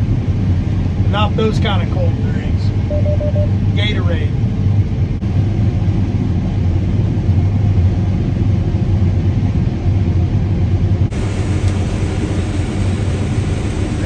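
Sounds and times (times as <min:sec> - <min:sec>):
combine harvester droning: 0:00.1 - 0:05.2, 0:11.0 - 0:14.0.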